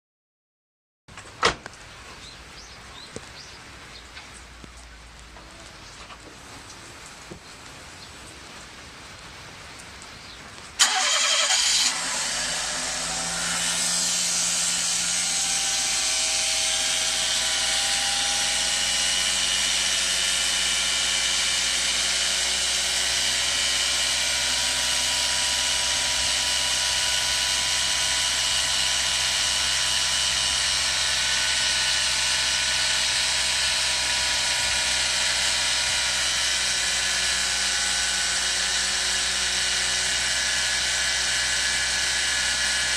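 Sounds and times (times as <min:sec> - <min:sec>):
engine starting and running: 0:10.8 - 0:42.9
whining hissing engine noise: 0:10.8 - 0:42.9.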